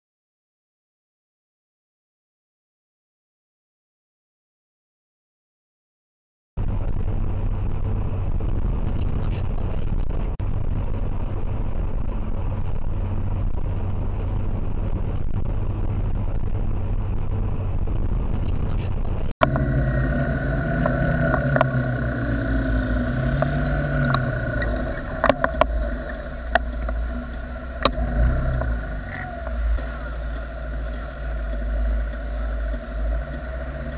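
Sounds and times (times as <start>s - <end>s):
engine running steadily: 6.6s - 33.9s
noisy rush: 6.6s - 33.9s
engine pitch rising and falling: 19.4s - 33.9s.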